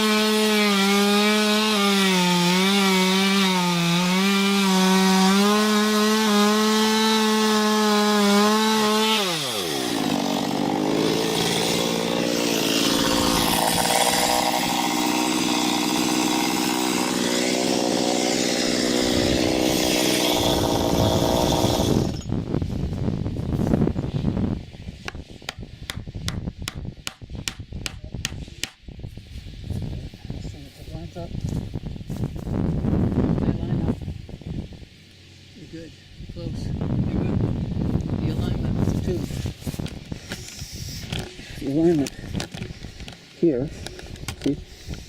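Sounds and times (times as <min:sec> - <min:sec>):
chainsaw cutting: 0:00.0 - 0:22.3
sharp knocks: 0:25.1 - 0:28.8.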